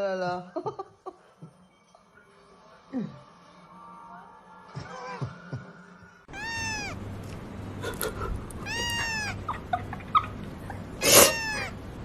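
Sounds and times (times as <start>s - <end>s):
cat meowing: 6.3s - 7.1s, 8.6s - 9.5s, 11.0s - 11.8s.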